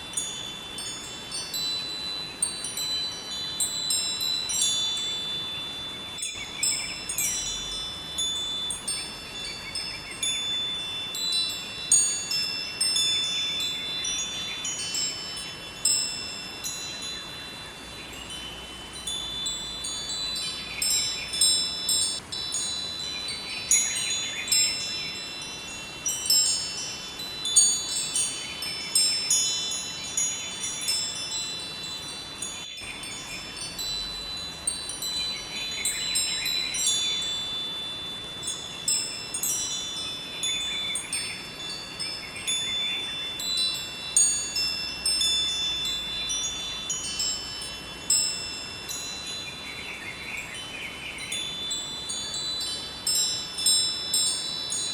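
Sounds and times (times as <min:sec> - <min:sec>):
rushing river: 0:00.0 - 0:54.9
wind chimes ringing: 0:00.0 - 0:54.9.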